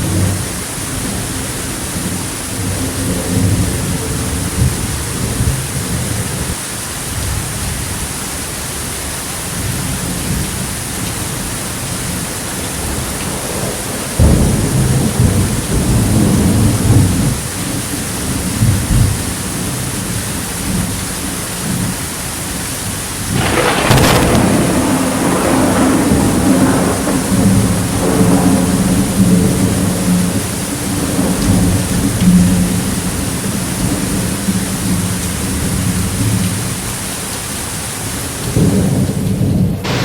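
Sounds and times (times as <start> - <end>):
steady rain: 0.0 - 40.0
rolling thunder: 11.2 - 19.7, 23.2 - 36.6, 38.4 - 40.0
thunderclap with sharp crack: 12.6 - 17.4, 23.3 - 32.4, 38.5 - 40.0.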